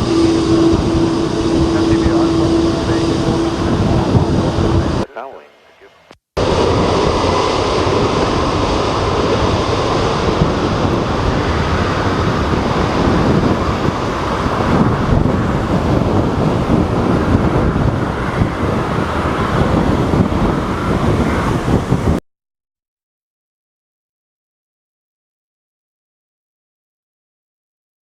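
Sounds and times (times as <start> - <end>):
strong wind buffeting microphone: 0.0 - 5.2, 6.4 - 22.2.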